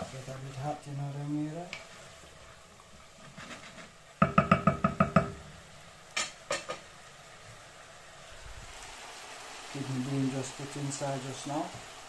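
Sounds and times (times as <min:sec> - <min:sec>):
utensil tapping metal pot: 0:04.2 - 0:05.4.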